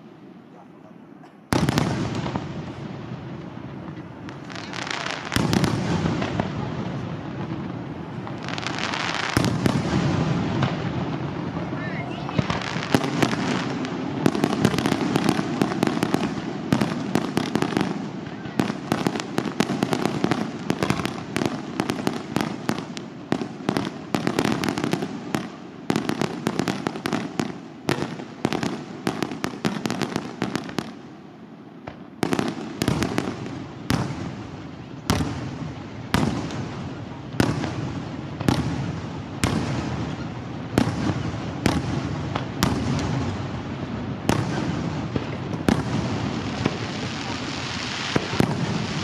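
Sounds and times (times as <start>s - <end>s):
fireworks bangs and crackles: 0.0s - 49.0s
echoing firework bangs: 1.5s - 31.2s, 31.8s - 49.0s.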